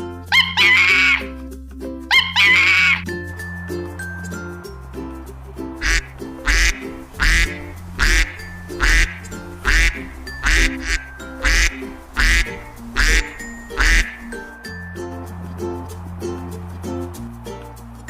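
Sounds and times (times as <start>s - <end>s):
background music with bass line: 0.0s - 18.0s
duck quacking: 0.3s - 1.3s, 2.1s - 3.0s, 5.8s - 14.4s.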